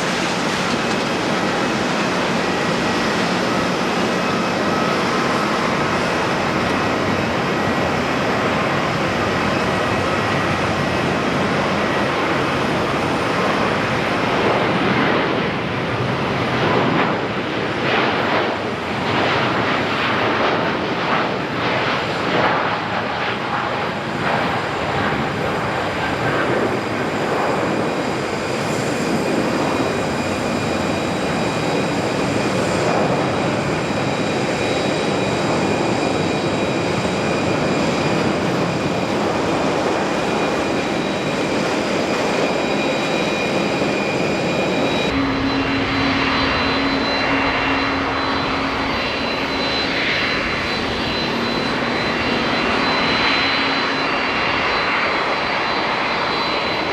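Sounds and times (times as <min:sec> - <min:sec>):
high engine whine: 0:00.0 - 0:17.7, 0:23.9 - 0:56.9
jet engines roaring: 0:00.0 - 0:56.9.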